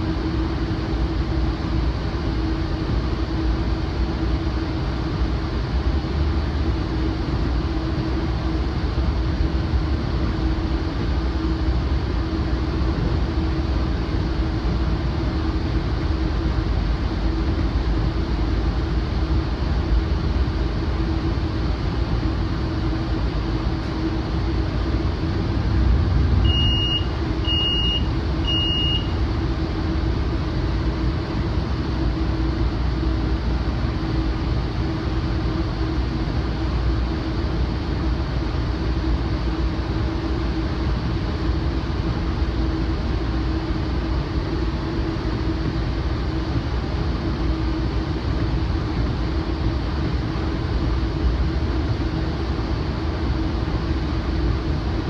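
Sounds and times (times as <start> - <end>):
steady hum: 0.0 - 55.0
train car rumbling on track: 0.0 - 55.0
alerter beeps: 26.4 - 29.2.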